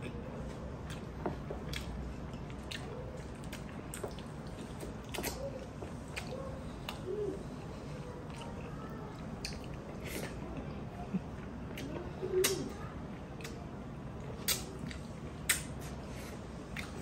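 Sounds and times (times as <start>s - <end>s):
wet chewing and lip smacks: 0.8s - 7.0s, 8.2s - 10.4s, 11.4s - 12.7s, 13.3s - 13.6s, 14.2s - 16.0s, 16.6s - 17.0s
sharp mouth clicks: 11.7s - 12.7s, 14.4s - 16.0s.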